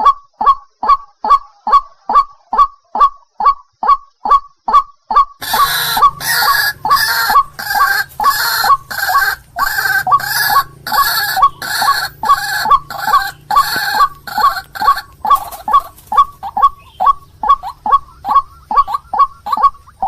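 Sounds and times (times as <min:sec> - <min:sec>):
waterhen harsh croaking call: 0:05.2 - 0:20.0.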